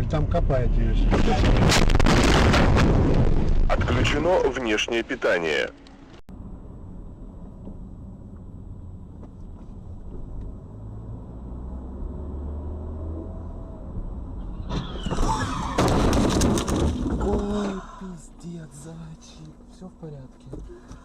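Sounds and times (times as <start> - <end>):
car road and engine rumble: 0.0 - 21.0
sudden loud noise: 1.0 - 4.4.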